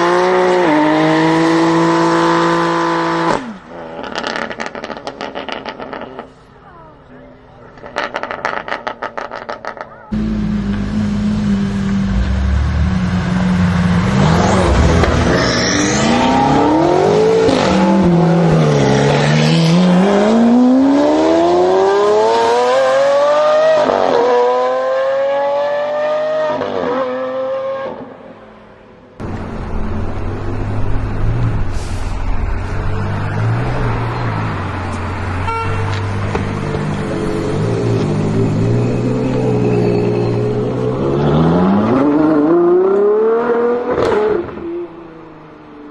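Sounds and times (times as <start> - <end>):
car engine running steadily: 10.2 - 14.1.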